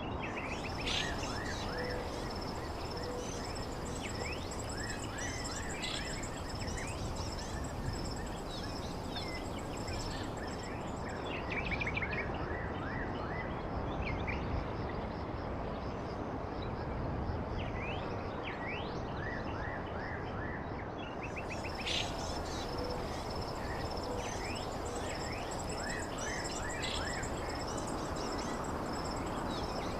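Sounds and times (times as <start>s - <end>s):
background hiss: 0.4s - 11.4s, 21.4s - 29.9s
insect trill: 0.4s - 11.8s, 21.3s - 29.9s
birds chirping: 0.5s - 11.1s, 21.4s - 29.9s.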